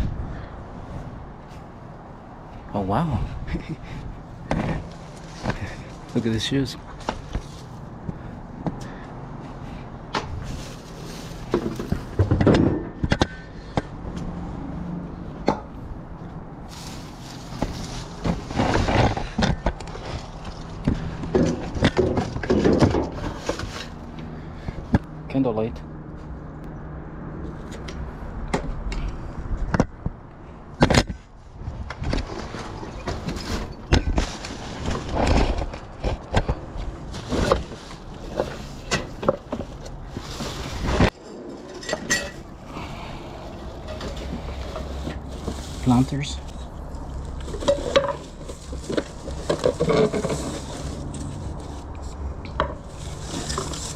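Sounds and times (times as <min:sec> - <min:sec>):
items knocking and clattering: 0:11.4 - 0:13.3, 0:17.6 - 0:23.9, 0:47.4 - 0:51.3.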